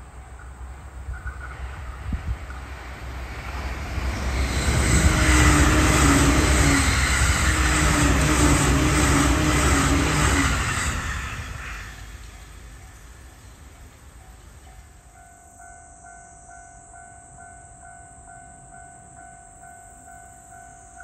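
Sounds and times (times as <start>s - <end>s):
train wheels rushing on rails: 0.0s - 15.3s
train hum: 0.0s - 21.0s.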